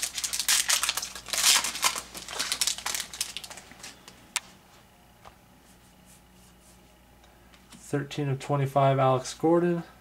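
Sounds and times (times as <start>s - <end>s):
wrapper crinkling: 0.0s - 4.0s.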